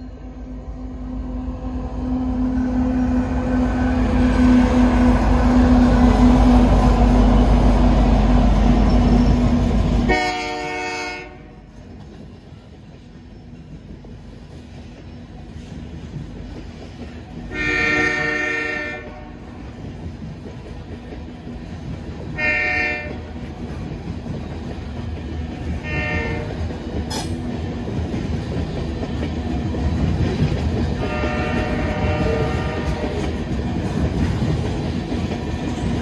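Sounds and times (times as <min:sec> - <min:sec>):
diesel locomotive engine drone: 0:00.0 - 0:36.0
train horn blasts: 0:10.0 - 0:11.7, 0:17.5 - 0:19.6, 0:22.4 - 0:23.3, 0:25.8 - 0:26.7, 0:31.0 - 0:33.4.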